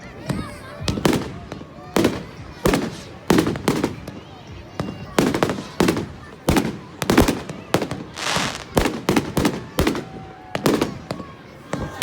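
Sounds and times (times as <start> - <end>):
firework bangs: 0.3 - 12.0
firework crackling hiss: 4.8 - 11.2.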